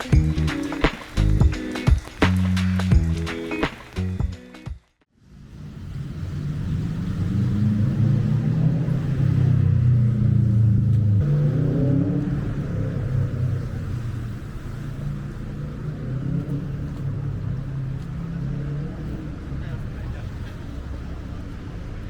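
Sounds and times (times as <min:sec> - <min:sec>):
traffic hum: 0:00.0 - 0:04.6, 0:05.2 - 0:22.0
vehicle engine humming close by: 0:05.3 - 0:22.0.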